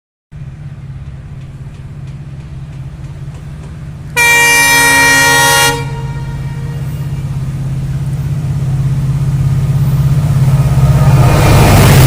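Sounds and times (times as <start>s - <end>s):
train horn blast: 4.2s - 7.4s.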